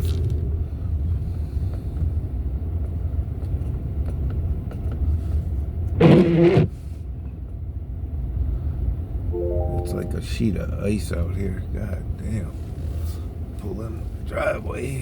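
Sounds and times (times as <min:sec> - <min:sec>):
road and engine rumble in car: 0:00.0 - 0:09.3, 0:10.5 - 0:15.0
short pitched sound: 0:09.4 - 0:10.5.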